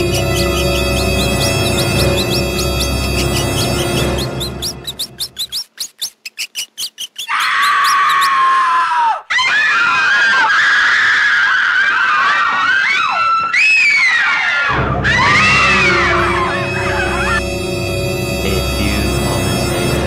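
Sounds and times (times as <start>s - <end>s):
low scary music: 0.0s - 4.5s, 14.7s - 20.0s
high rising squeaks: 0.0s - 8.6s
wavering shrieks: 0.0s - 17.5s.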